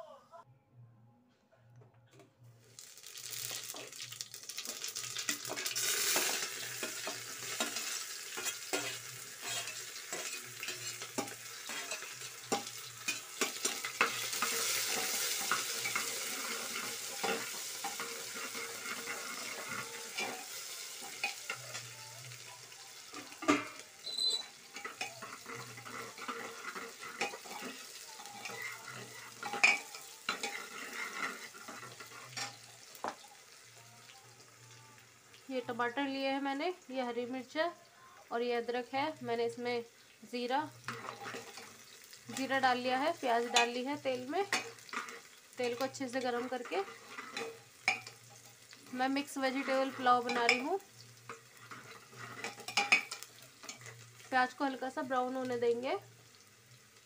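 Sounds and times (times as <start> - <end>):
onion sizzling in hot oil: 2.6 - 57.0
metal spoon scraping and clinking: 5.2 - 21.9, 23.1 - 32.7, 40.9 - 42.6, 43.4 - 50.6, 51.3 - 54.0.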